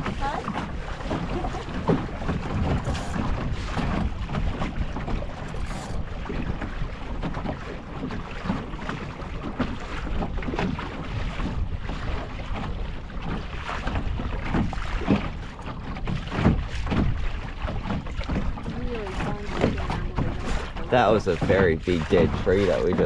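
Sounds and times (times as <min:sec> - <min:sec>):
water slapping against a boat hull: 0:00.0 - 0:23.0
wind buffeting the microphone: 0:00.0 - 0:23.0.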